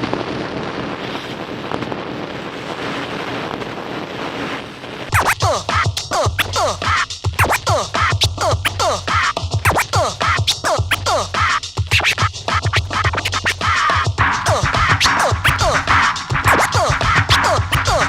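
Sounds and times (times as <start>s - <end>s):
steady rushing noise: 0.9s - 18.0s
low beat pulse: 5.1s - 10.1s, 10.8s - 18.0s
turntable scratching: 5.1s - 18.0s.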